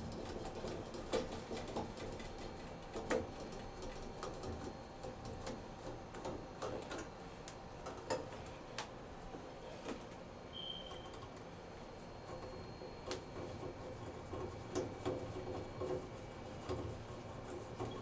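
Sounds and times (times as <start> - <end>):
clicks and taps of parts and tools: 2.9 - 8.9.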